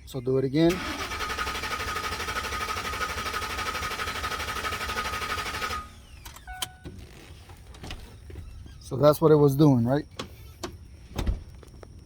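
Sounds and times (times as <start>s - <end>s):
starter motor cranking engine: 0.7s - 6.4s.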